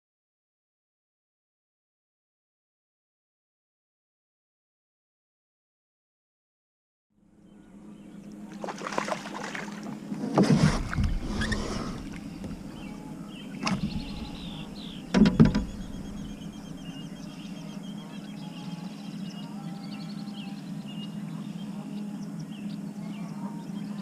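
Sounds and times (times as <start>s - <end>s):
steady low hum: 7.2s - 24.0s
knocking splashy kayak sounds: 8.5s - 12.8s
faint high chirping: 12.6s - 24.0s.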